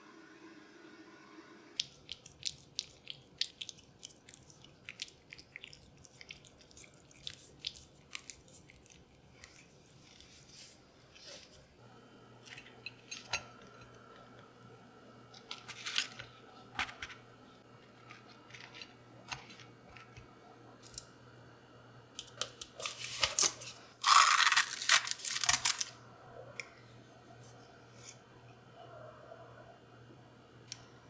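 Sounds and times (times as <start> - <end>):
loud crinkly rustle: 22.8 - 26.0.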